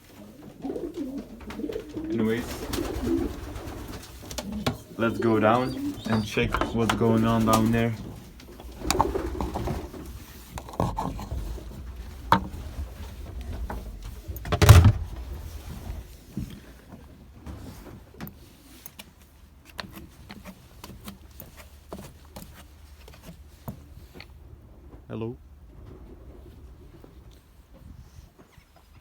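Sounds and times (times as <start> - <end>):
knocks and clicks of movement: 6.0 - 16.6
loud deep thump: 14.4 - 16.0.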